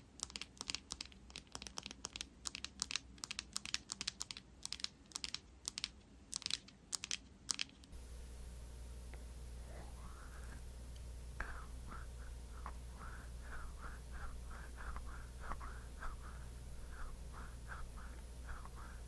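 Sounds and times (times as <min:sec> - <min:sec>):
crisp clicks and taps: 0:00.1 - 0:07.9
low hum: 0:07.9 - 0:19.0.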